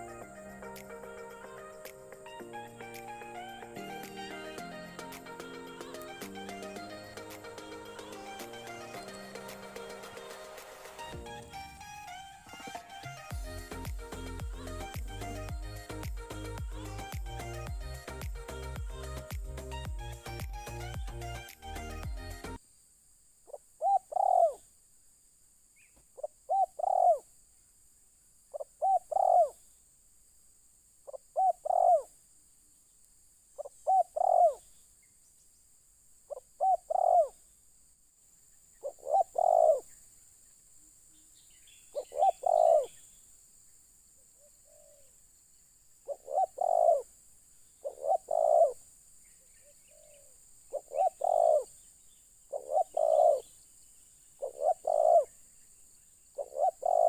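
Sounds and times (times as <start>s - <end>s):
dove cooing: 23.8s - 24.6s, 26.5s - 27.2s, 28.6s - 29.5s, 31.1s - 32.1s, 33.6s - 34.6s, 36.3s - 37.4s, 38.8s - 39.8s, 42.0s - 42.9s, 44.4s - 45.1s, 46.1s - 47.1s, 47.8s - 48.8s, 49.6s - 51.7s, 52.5s - 53.5s, 54.4s - 55.3s, 56.4s - 57.0s.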